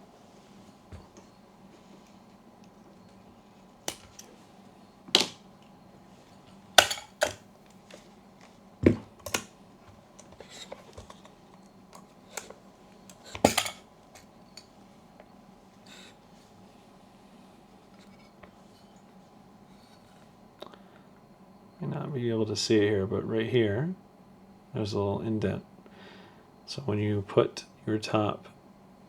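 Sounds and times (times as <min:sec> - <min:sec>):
small tools clicking and knocking: 0:03.9 - 0:04.4, 0:06.5 - 0:08.0, 0:08.8 - 0:14.7.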